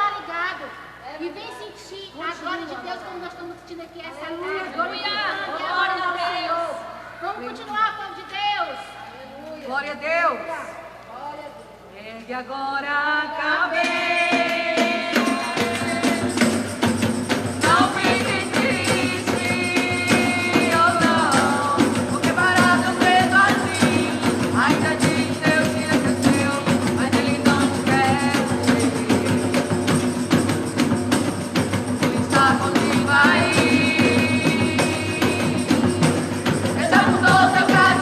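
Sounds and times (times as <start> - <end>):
gospel band playing: 13.4 - 38.0
drums and percussion: 13.7 - 38.0.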